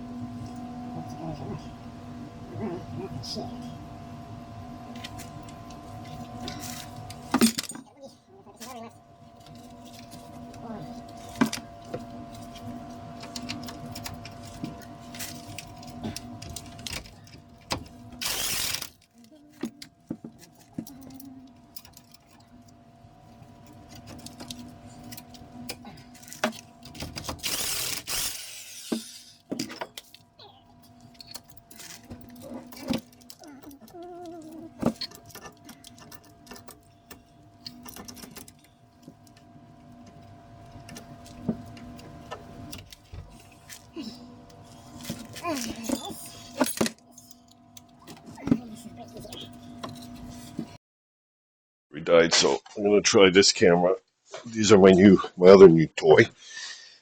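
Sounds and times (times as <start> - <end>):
metal tools clinking: 30.8 - 38.7.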